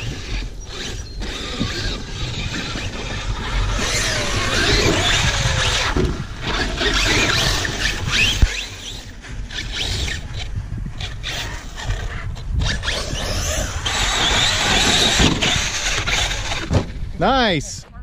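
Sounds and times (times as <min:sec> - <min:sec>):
electric motors whining: 0:00.0 - 0:17.2
sharp thump: 0:16.7 - 0:16.9.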